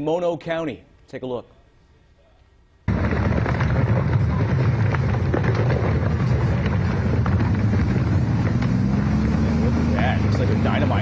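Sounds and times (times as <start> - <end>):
rockslide rumble: 2.9 - 11.0.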